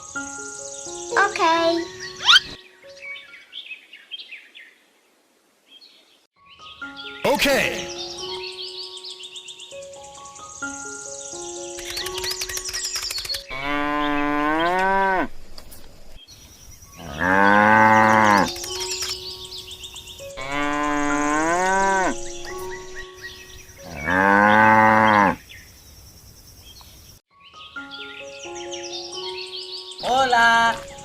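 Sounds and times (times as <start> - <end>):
faint background music: 0.0 - 3.3, 6.4 - 15.2, 27.4 - 31.0
cattle mooing: 13.5 - 15.4, 23.9 - 25.4.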